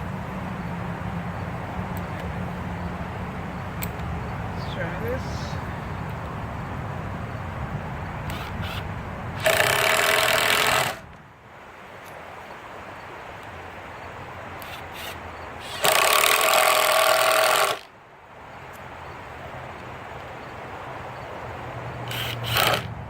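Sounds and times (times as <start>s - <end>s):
impact driver hammering screws: 8.3s - 8.8s, 9.4s - 11.0s, 22.1s - 22.9s.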